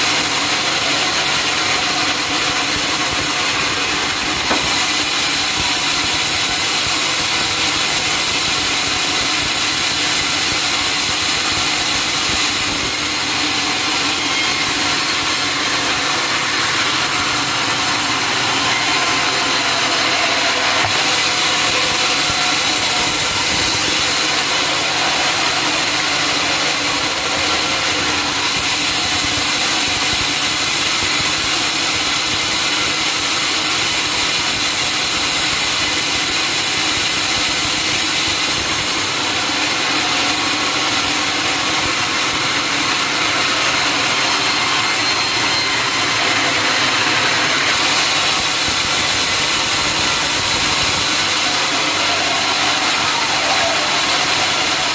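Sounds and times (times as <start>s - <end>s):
saw hissing through log: 7.8s - 31.4s, 43.0s - 54.9s.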